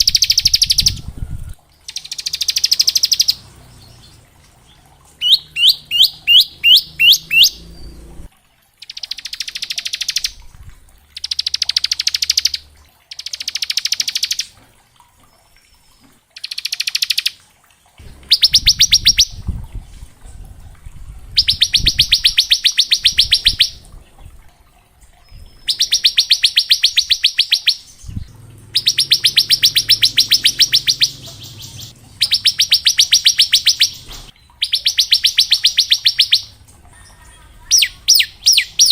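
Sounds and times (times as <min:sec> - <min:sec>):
bird singing rapid trill: 0:00.0 - 0:01.1, 0:01.8 - 0:04.2, 0:05.2 - 0:10.4, 0:11.1 - 0:14.5, 0:18.0 - 0:19.4, 0:21.4 - 0:23.8, 0:25.4 - 0:38.9.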